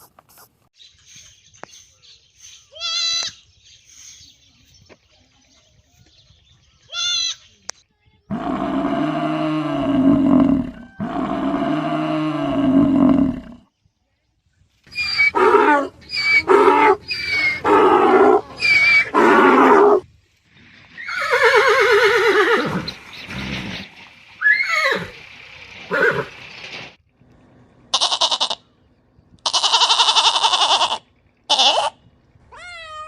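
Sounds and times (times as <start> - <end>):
animal calls: 14.9 - 20.0.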